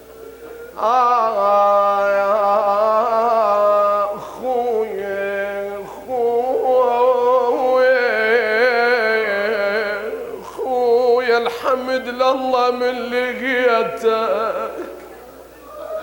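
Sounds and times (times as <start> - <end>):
man chanting a lament: 0.8 - 15.0.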